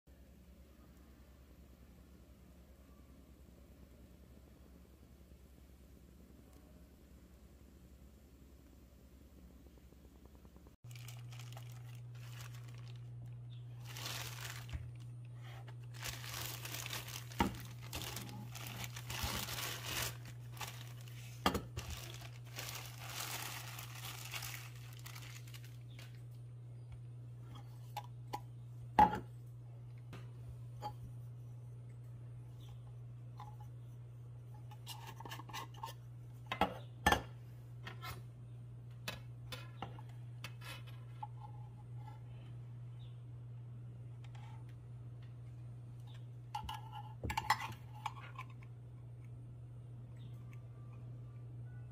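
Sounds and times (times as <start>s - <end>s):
steady low hum: 0.1s - 51.9s
thin material crinkling and tearing: 10.8s - 26.4s.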